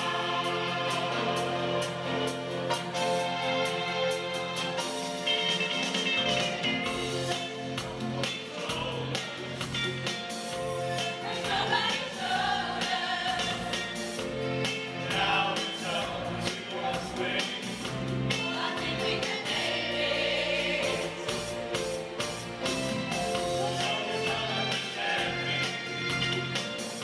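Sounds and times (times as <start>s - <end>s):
choir singing pop song: 0.0s - 3.2s, 6.9s - 27.0s
steady drum beat: 6.8s - 27.0s.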